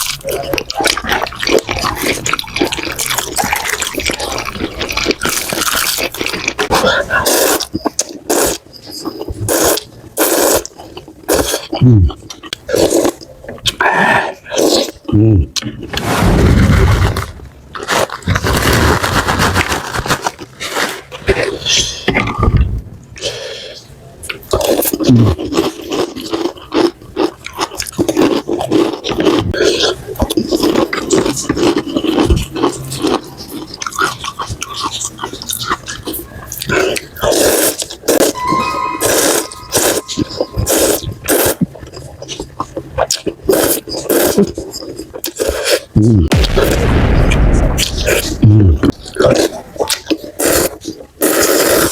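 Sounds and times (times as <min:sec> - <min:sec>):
slurping noodles: 0:00.0 - 0:11.8, 0:27.8 - 0:38.4, 0:39.0 - 0:46.4, 0:48.9 - 0:51.9
chewing sounds: 0:00.0 - 0:16.0, 0:24.2 - 0:38.4, 0:39.0 - 0:51.9.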